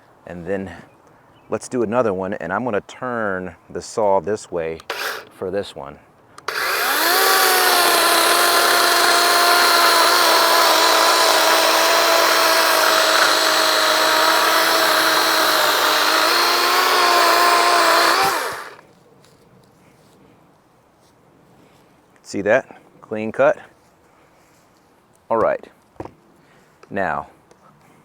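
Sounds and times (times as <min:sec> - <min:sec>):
electric chainsaw cutting a log: 0:04.8 - 0:05.4, 0:06.4 - 0:18.8.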